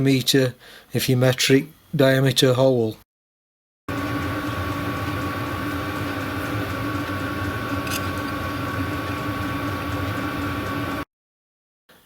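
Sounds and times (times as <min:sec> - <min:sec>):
machine tool motor humming: 0:03.9 - 0:11.0.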